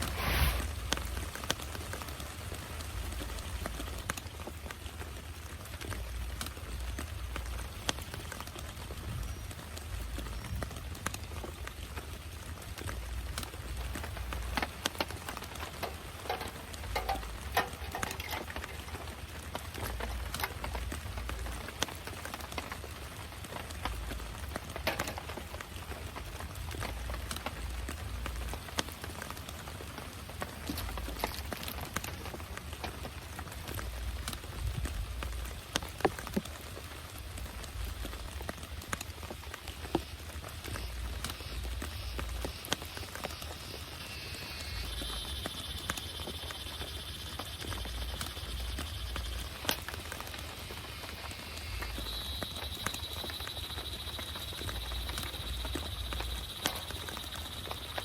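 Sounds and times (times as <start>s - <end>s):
rain falling: 0.0s - 58.0s
raindrops tapping on a surface: 0.0s - 58.0s
drops hitting nearby surface: 14.5s - 19.2s.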